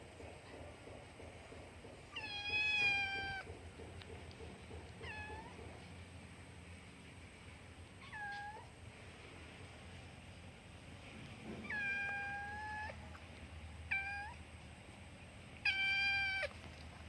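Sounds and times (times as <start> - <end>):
cat meowing: 2.2 - 3.5, 5.0 - 5.6, 8.0 - 8.7, 11.6 - 13.1, 13.9 - 14.4, 15.6 - 16.6.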